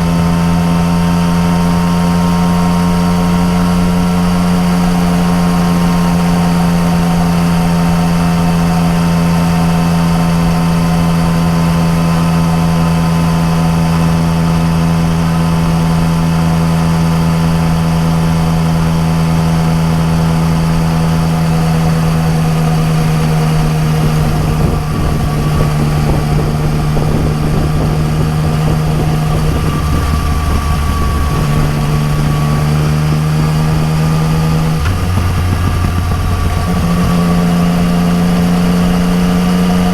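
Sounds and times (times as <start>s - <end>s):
motorcycle engine cruising: 0.0s - 39.9s
wind rushing: 23.4s - 38.4s.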